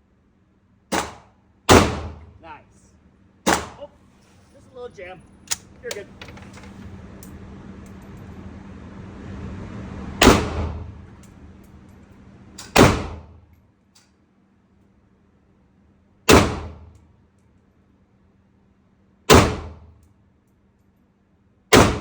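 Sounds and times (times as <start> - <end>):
rifle shots: 0.9 - 2.3, 3.4 - 3.8, 10.2 - 10.9, 12.6 - 13.3, 16.3 - 16.9, 19.3 - 19.8, 21.7 - 22.0.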